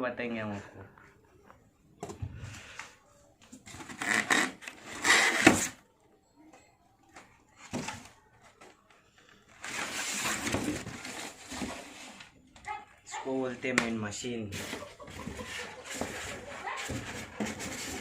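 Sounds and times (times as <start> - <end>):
packaging rustling and knocking: 9.6 - 12.7, 14.5 - 18.0.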